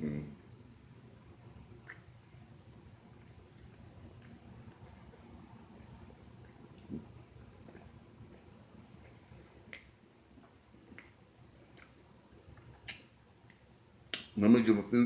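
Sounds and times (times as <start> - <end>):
mouth clicks while chewing: 1.8 - 2.3, 6.0 - 14.4.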